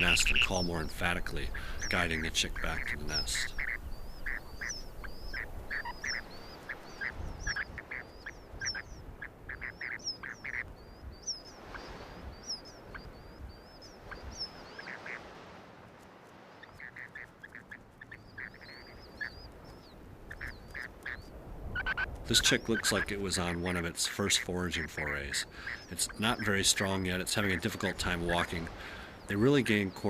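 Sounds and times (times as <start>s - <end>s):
lower short bird notes: 0.0s - 15.2s.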